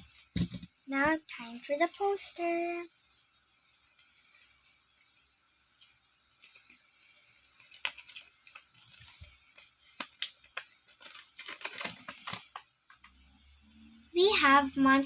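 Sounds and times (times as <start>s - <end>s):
paper poster crinkling: 5.9s - 13.1s.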